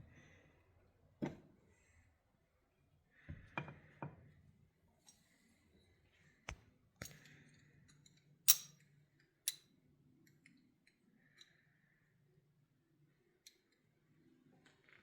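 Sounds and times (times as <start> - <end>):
small metal parts clicking: 7.0 - 8.9.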